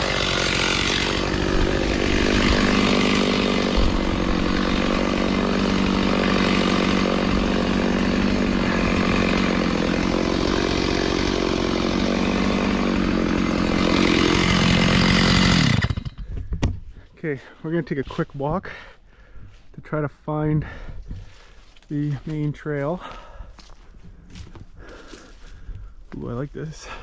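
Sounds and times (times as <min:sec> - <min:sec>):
chainsaw engine running: 0:00.0 - 0:16.3, 0:22.0 - 0:27.0.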